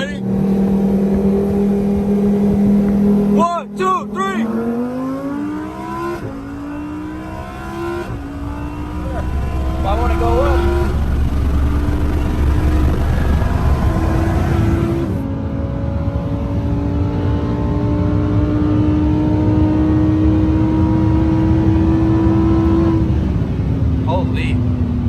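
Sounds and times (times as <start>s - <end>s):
car engine pulling under load: 4.5s - 15.3s.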